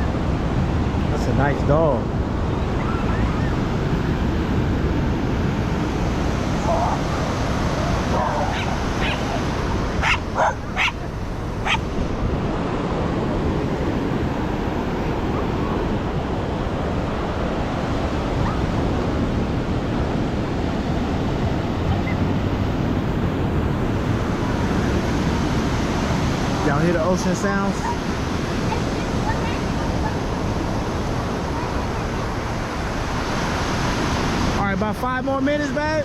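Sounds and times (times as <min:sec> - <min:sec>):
ocean surf: 0:00.0 - 0:36.0
dog barking and yipping: 0:06.6 - 0:11.9.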